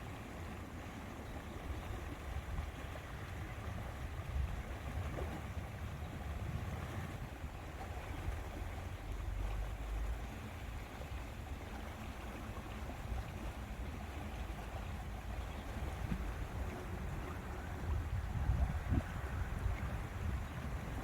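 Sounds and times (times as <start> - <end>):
wind buffeting microphone: 1.7 - 9.4, 13.1 - 21.0.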